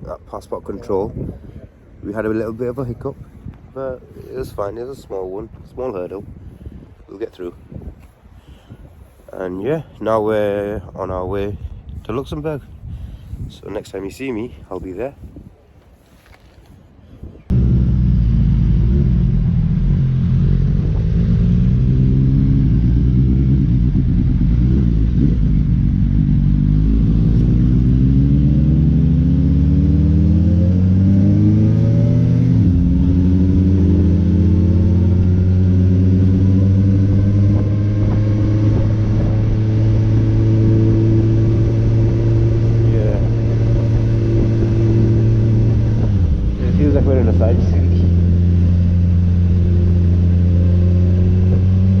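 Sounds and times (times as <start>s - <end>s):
motorcycle engine accelerating: 17.5s - 52.0s.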